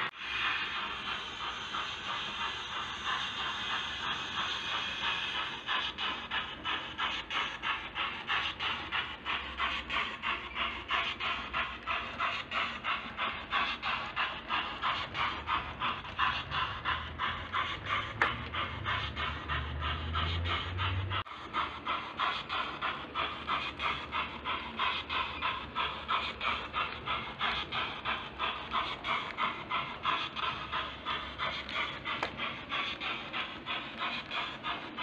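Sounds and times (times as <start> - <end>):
steam hiss: 0.0 - 35.0
steam locomotive exhaust chuffs: 0.0 - 35.0
wagons rumbling on track: 0.8 - 35.0.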